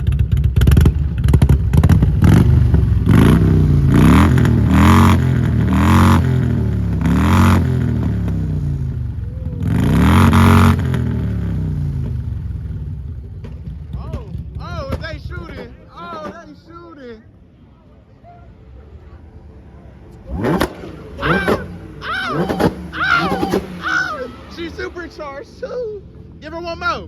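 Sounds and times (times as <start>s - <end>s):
motorcycle engine revving: 0.0s - 15.0s, 20.1s - 26.4s
exhaust crackling pops: 13.1s - 15.7s, 20.2s - 23.8s.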